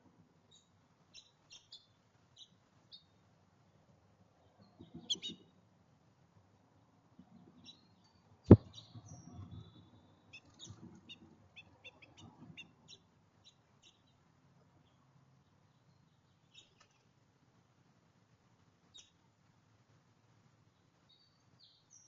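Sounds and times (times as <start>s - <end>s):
small birds chirping: 0.4s - 5.6s, 6.7s - 17.2s, 18.8s - 19.4s, 20.6s - 22.0s
soft thuds: 8.5s - 9.7s.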